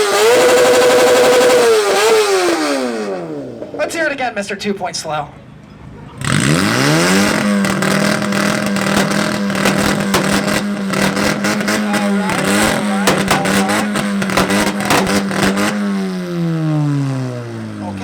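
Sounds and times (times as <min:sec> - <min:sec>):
car engine revving: 0:00.0 - 0:04.1, 0:06.2 - 0:18.0
exhaust pops and bangs: 0:06.2 - 0:16.2.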